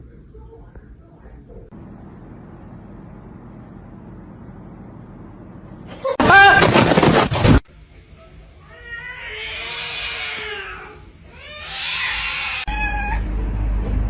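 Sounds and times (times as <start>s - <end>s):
low hum: 1.7s - 6.2s
loud noise: 5.9s - 7.6s
cats meowing: 8.7s - 13.2s.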